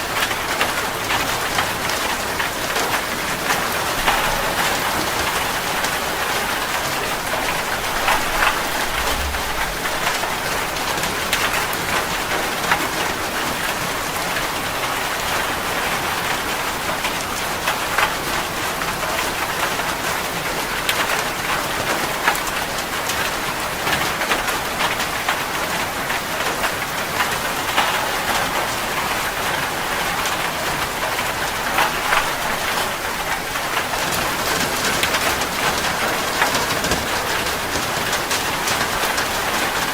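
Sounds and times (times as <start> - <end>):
heavy rain on a metal roof: 0.0 - 39.9.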